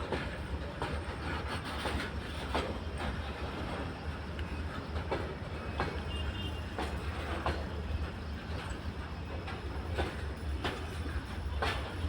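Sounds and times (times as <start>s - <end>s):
wheel clacks over rail joints: 9.4s - 12.0s.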